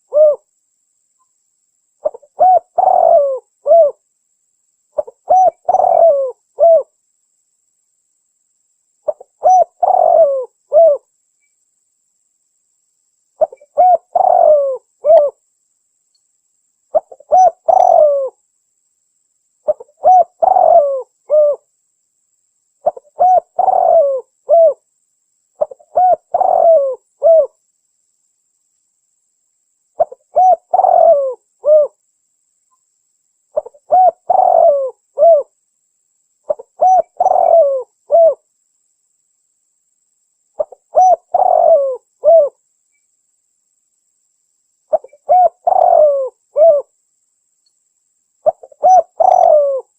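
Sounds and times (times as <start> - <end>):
dove cooing: 0.0 - 0.5, 2.0 - 4.0, 5.0 - 6.9, 9.1 - 11.1, 13.4 - 15.4, 16.9 - 18.4, 19.7 - 21.7, 22.8 - 24.8, 25.6 - 27.6, 30.0 - 32.0, 33.6 - 35.5, 36.5 - 38.4, 40.6 - 42.6, 44.9 - 46.9, 48.4 - 49.9.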